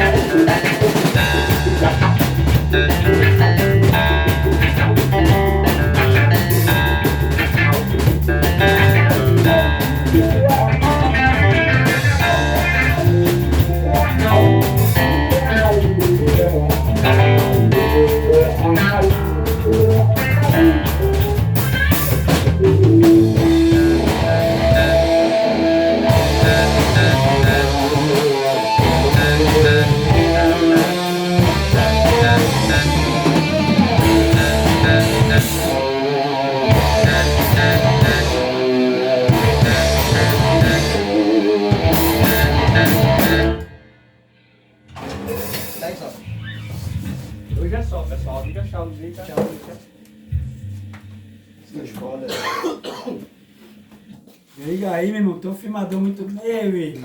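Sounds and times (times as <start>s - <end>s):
band playing rock blues song: 0.0s - 43.7s
drumming and cymbal hits: 0.0s - 43.7s
electric guitar: 0.0s - 44.0s.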